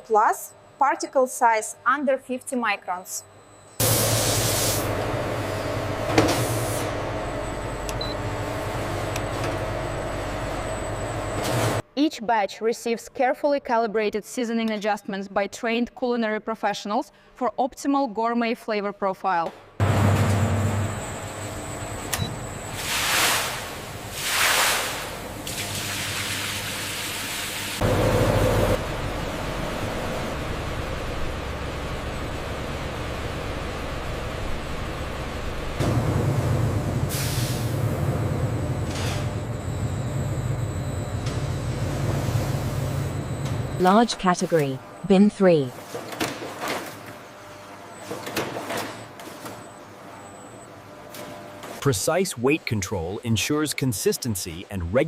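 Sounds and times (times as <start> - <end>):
factory machinery hum: 0.0 - 12.1, 13.1 - 55.0
low hum: 27.8 - 45.1.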